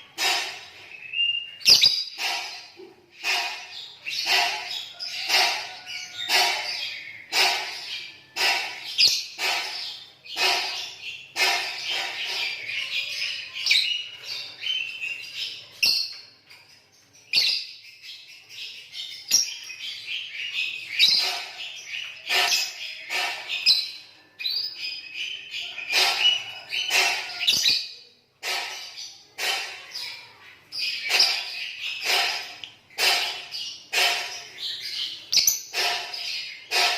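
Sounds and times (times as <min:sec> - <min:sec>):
lovebirds chirping shrilly: 0:00.0 - 0:15.1, 0:25.2 - 0:36.9.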